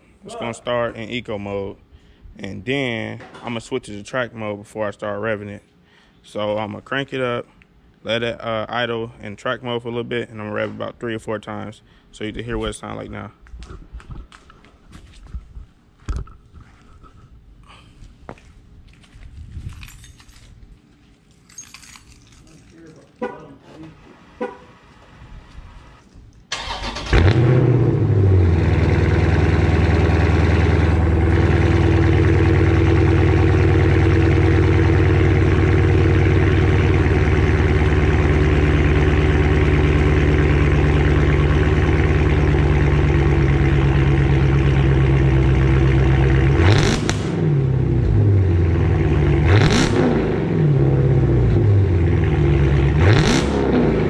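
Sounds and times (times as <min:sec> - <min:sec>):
car engine starting: 0:26.5 - 0:54.0
car engine revving: 0:26.6 - 0:54.0
car engine idling loudly: 0:28.3 - 0:46.7.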